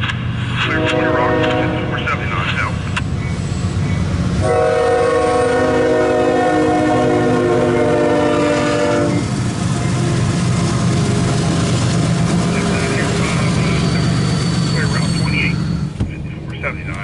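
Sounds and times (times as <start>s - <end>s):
freight train rumbling: 0.0s - 17.0s
locomotive air horn blast: 0.6s - 2.0s, 4.4s - 9.3s.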